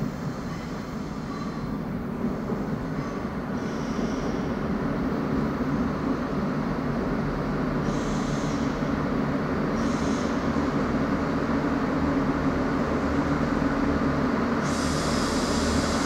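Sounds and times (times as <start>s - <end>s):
train engine and wheel rumble: 0.0s - 16.0s
train wheels squealing: 0.3s - 1.8s, 2.8s - 4.6s, 7.8s - 8.9s, 9.8s - 10.6s.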